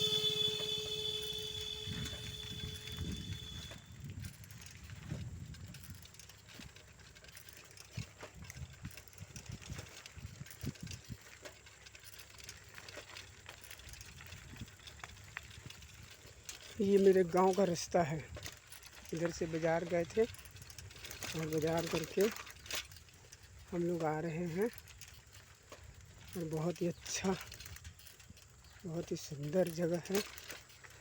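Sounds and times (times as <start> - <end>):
vehicle horn tone: 0.0 - 4.0
bicycles ticking and rattling: 0.0 - 31.0
low road rumble: 0.0 - 31.0.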